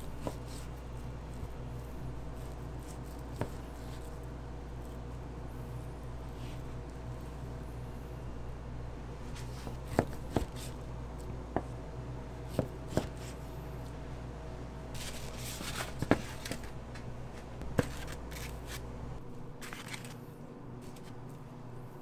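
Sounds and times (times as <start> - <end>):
steady low hum: 0.0 - 22.0
rustling scrapes: 15.0 - 16.7.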